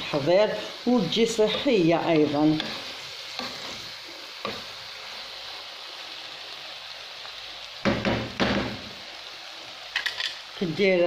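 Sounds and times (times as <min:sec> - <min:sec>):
food sizzling in a frying pan: 0:00.0 - 0:11.0
spatula scraping pan: 0:01.3 - 0:04.6.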